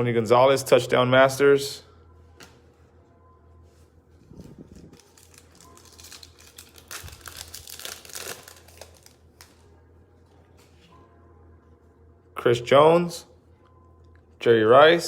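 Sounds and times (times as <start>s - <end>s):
steady low hum: 0.0s - 15.0s
plastic wrappers crinkling: 4.3s - 9.7s.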